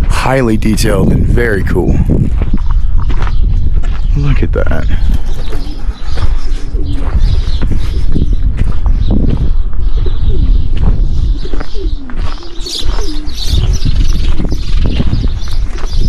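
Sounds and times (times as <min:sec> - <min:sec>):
doves cooing: 0:04.9 - 0:16.0.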